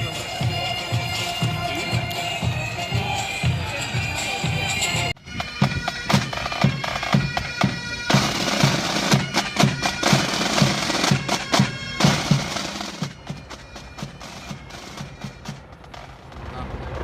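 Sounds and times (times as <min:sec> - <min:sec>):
bagpipes playing: 0:00.0 - 0:15.7
marching drum beat: 0:00.0 - 0:16.2
rush of noise: 0:15.6 - 0:17.0.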